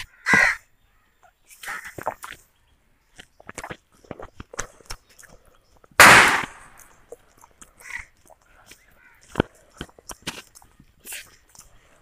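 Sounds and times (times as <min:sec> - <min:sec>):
chewing with wet clicks: 0:03.1 - 0:06.0, 0:06.8 - 0:12.0.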